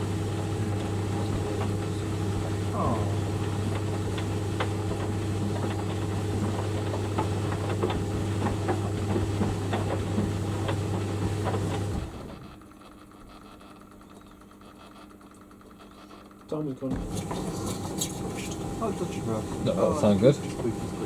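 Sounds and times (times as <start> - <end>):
knocks from dryer drum: 0.0 - 12.1
tumble dryer motor hum: 0.0 - 21.0.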